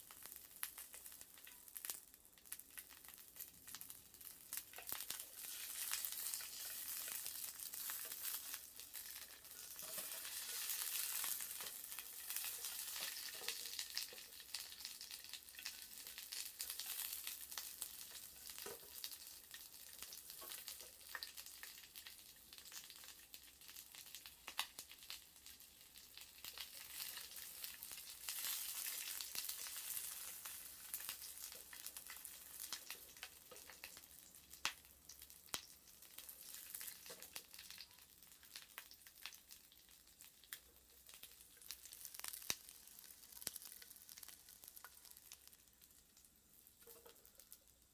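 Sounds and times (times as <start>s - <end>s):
sausages sizzling: 0.0s - 47.9s
wood fire crackling: 0.0s - 47.9s.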